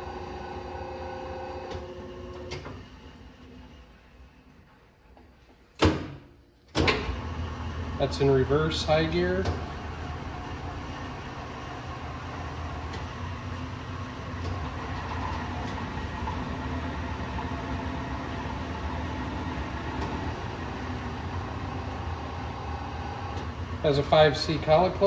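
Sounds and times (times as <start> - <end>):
lathe running: 7.0 - 25.0.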